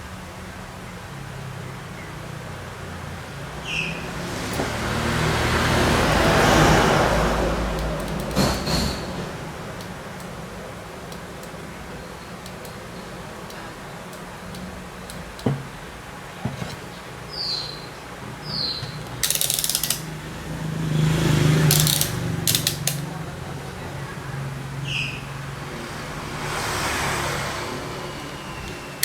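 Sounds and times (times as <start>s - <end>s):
mechanical clicks: 7.7s - 8.5s, 18.8s - 20.2s, 21.7s - 23.1s.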